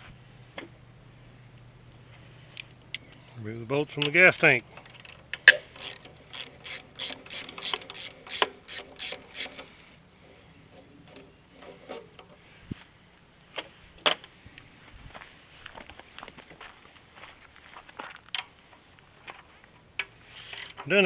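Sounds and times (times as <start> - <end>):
socket ratchet clicking: 4.8 - 9.7.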